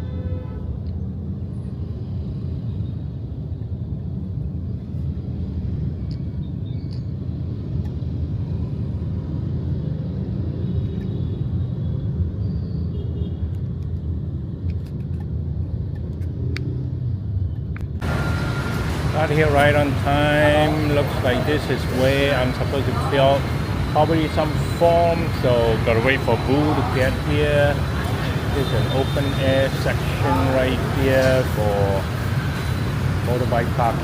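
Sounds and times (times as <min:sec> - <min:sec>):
road vehicle rumbling: 0:00.0 - 0:34.0.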